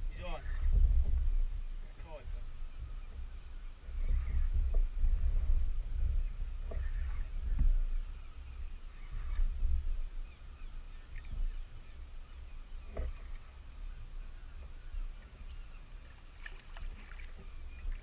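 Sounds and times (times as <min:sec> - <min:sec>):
wind buffeting microphone: 0:00.0 - 0:18.0
water slapping against kayak hull: 0:16.1 - 0:18.0.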